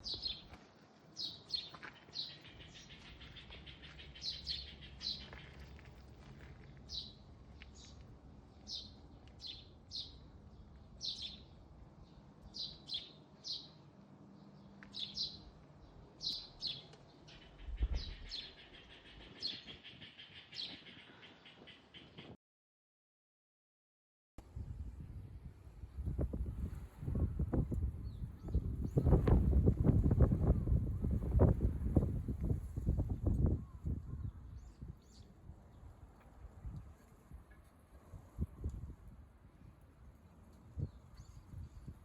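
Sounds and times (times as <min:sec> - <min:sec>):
small birds chirping: 0:00.0 - 0:22.4
low thud: 0:17.7 - 0:18.5.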